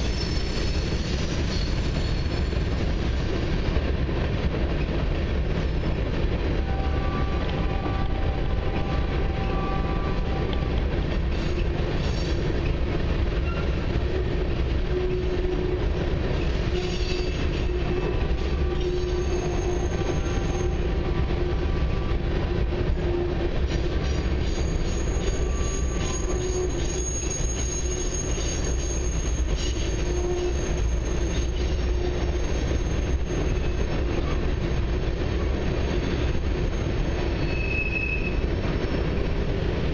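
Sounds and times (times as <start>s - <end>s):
train wheels rumbling on rail: 0.0s - 39.9s
high-pitched wheel squeal: 16.7s - 20.8s, 24.4s - 34.8s, 36.7s - 38.4s.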